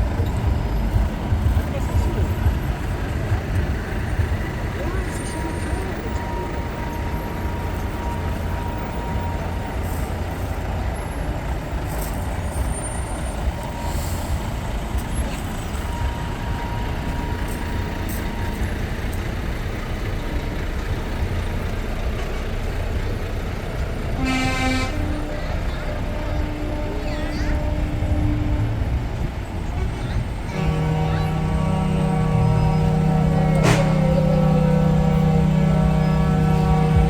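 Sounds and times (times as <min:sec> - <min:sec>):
truck diesel engines rumbling: 0:00.0 - 0:37.0
truck air horn: 0:24.0 - 0:37.0.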